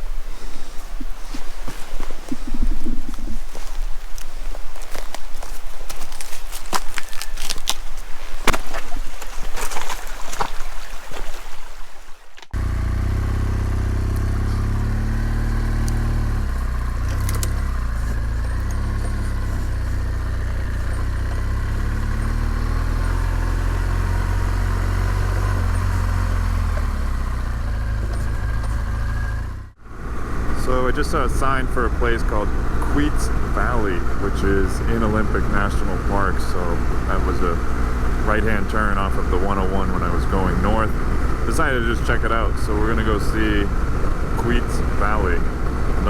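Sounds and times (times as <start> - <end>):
motorcycle engine running: 12.5 - 46.0.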